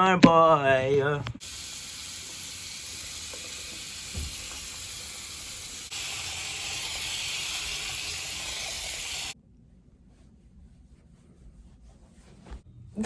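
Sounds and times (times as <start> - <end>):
steady hissing: 1.4 - 9.4
faint thump: 4.1 - 4.6.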